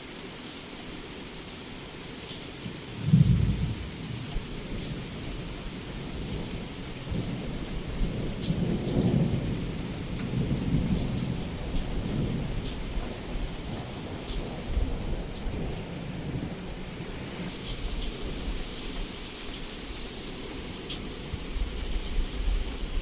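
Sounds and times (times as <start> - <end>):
heavy rain: 0.0 - 23.0
thunder clap: 3.0 - 4.0
thunder rumbling: 3.0 - 17.1.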